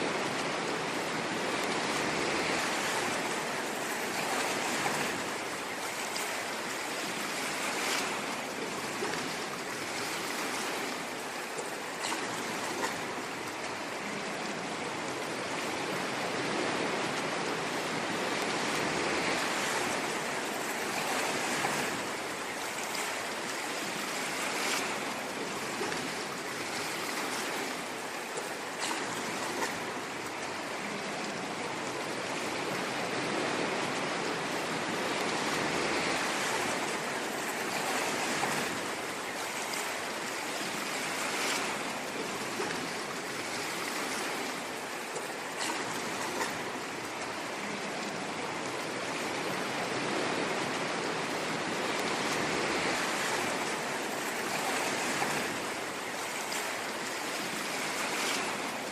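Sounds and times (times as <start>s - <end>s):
ocean waves washing onto shore: 0.0s - 58.9s.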